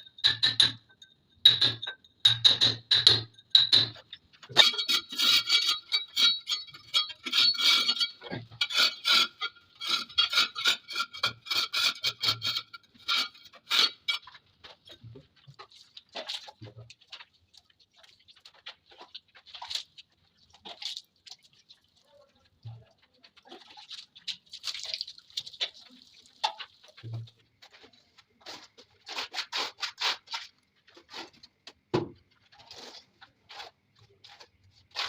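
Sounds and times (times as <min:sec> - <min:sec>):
scraping and chipping tile: 0:01.5 - 0:17.0, 0:25.6 - 0:35.0.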